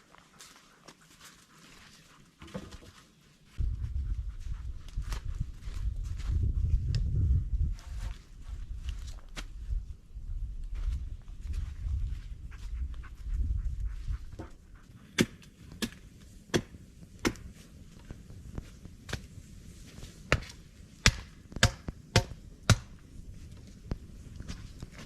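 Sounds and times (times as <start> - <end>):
low rumble: 3.6 - 14.9
sharp chopping blows: 15.1 - 17.5, 20.3 - 22.9.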